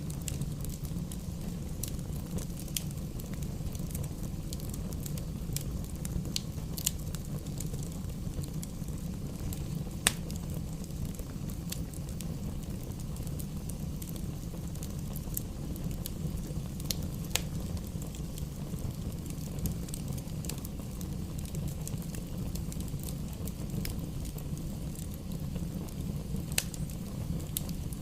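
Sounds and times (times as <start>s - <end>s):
fire crackling and popping: 0.0s - 28.0s
fire rumbling in fireplace: 0.0s - 28.0s.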